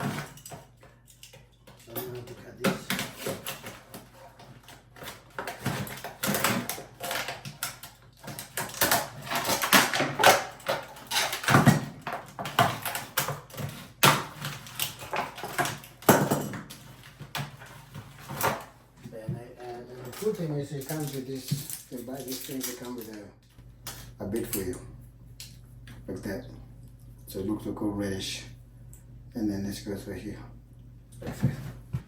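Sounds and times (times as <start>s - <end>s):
packaging clicks and rattles: 0.0s - 18.7s.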